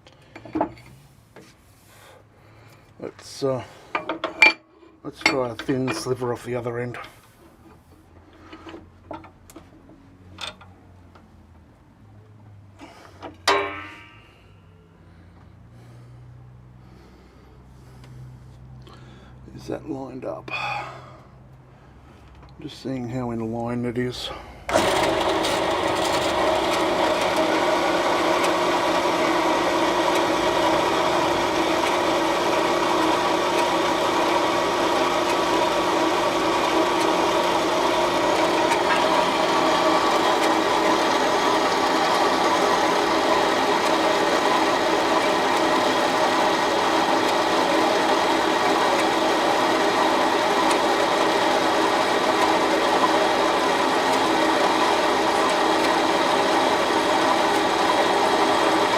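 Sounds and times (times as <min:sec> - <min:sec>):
band saw motor hum: 0:24.7 - 0:58.9.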